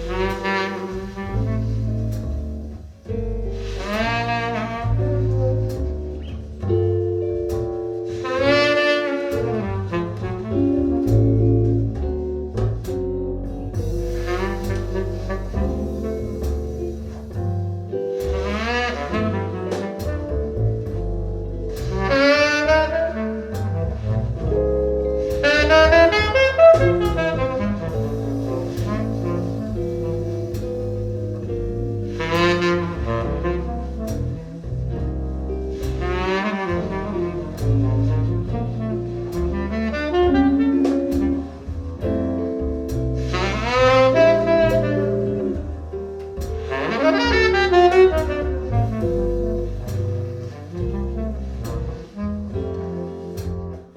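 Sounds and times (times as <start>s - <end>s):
double bass line: 0.0s - 53.9s
saxophone with vibrato: 46.7s - 53.9s.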